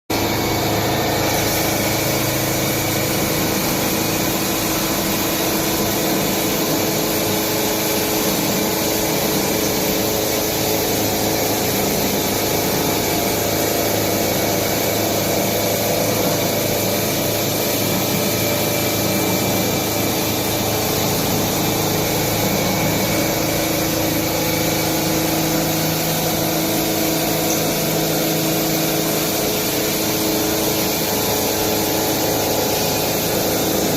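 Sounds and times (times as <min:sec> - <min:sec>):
constant machine whine: 0:00.1 - 0:33.9
lathe machining steel: 0:00.2 - 0:33.9.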